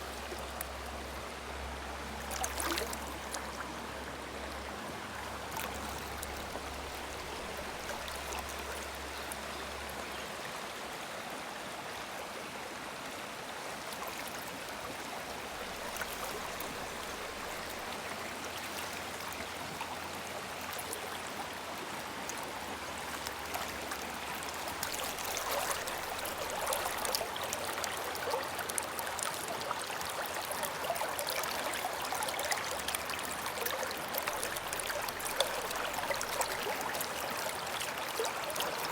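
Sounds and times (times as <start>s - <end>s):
river babbling over rocks: 21.2s - 38.9s.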